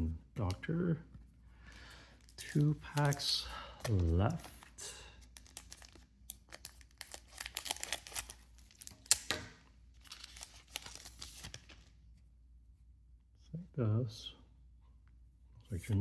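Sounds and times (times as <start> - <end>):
foil wrapper tearing and crinkling: 5.4 - 9.4, 10.0 - 11.9
wrapper snap: 5.4 - 11.8.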